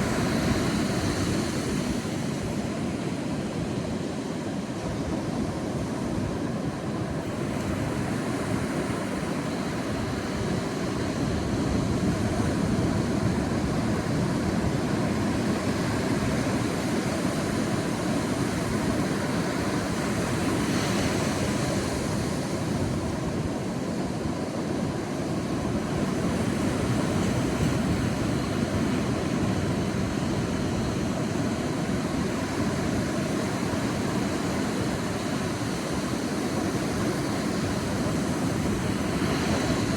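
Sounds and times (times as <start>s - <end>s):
waves washing on beach: 0.0s - 39.9s.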